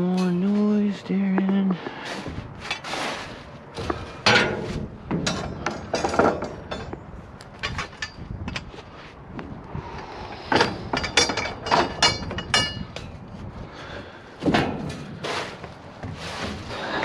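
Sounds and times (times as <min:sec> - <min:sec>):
scrap metal clanks and bangs: 0:02.0 - 0:07.0, 0:07.6 - 0:09.0, 0:10.4 - 0:13.2, 0:14.4 - 0:17.0.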